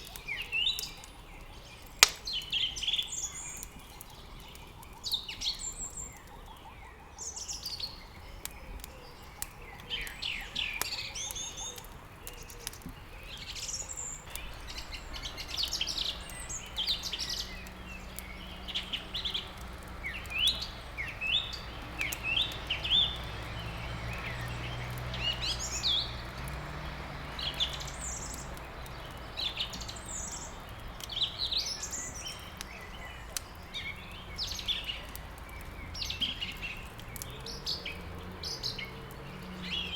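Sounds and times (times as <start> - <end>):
songbirds chirping: 0.0 - 39.9
wood fire crackling: 0.0 - 39.9.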